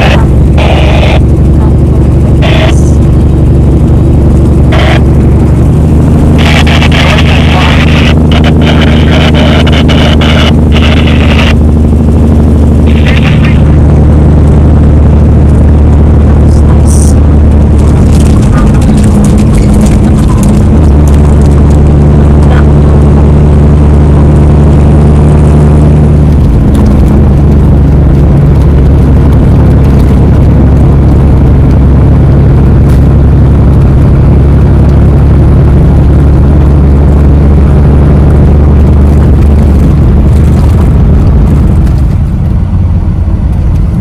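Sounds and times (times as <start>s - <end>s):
road noise: 0.0s - 44.0s
truck diesel engine drone: 0.0s - 44.0s.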